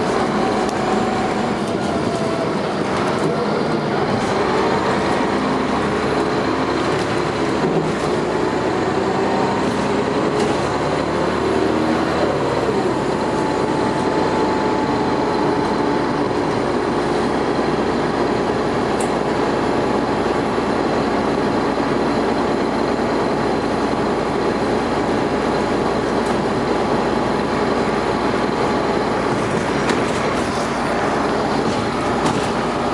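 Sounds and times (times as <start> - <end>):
bus diesel engine running: 0.0 - 32.9
road noise: 0.0 - 32.9.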